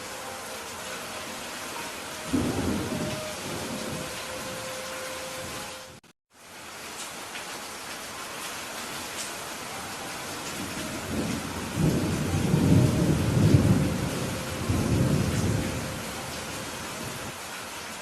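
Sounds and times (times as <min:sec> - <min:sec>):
rain hissing: 0:00.0 - 0:18.0
thunder rumbling: 0:02.3 - 0:04.7, 0:10.5 - 0:17.3.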